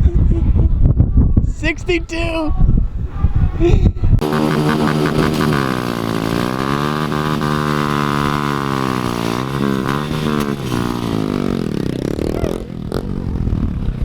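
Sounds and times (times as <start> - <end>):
car engine accelerating: 4.2 - 11.9.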